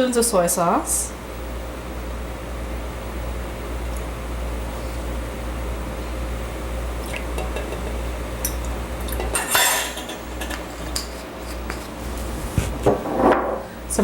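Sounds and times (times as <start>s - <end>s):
steady low hum: 0.0s - 14.0s
utensils clinking against dishes: 7.4s - 11.8s.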